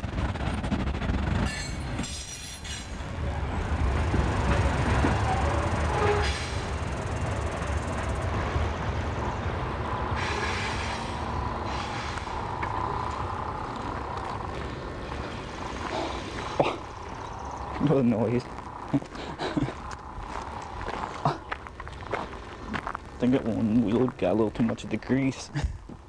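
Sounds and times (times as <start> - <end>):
freight train rumbling on rails: 0.0 - 26.0
squeaky wheel squealing: 5.0 - 6.8.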